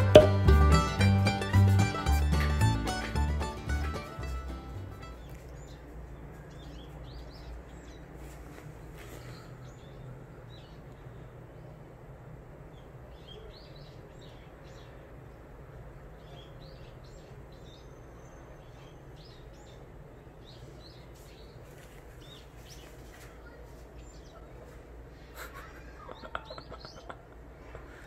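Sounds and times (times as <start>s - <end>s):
low background hum: 0.0s - 28.0s
small birds chirping: 4.2s - 28.0s.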